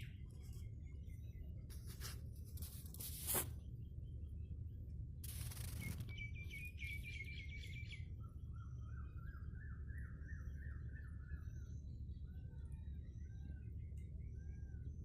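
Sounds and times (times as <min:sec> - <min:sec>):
steady low rumble: 0:00.0 - 0:09.5
birds chirping and warbling: 0:00.0 - 0:15.0.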